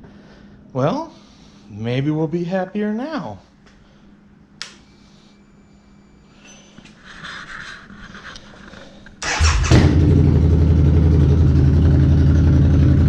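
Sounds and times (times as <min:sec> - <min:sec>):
motorcycle starter cranking: 0:09.2 - 0:10.2
motorcycle engine idling: 0:09.2 - 0:13.0.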